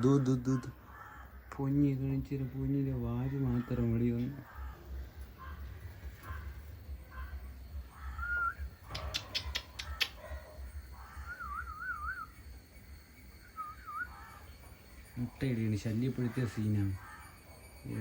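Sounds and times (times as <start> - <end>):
cockatiel whistling: 8.2 - 8.6, 11.3 - 12.3, 13.5 - 14.1
sharp clicks: 8.8 - 10.2.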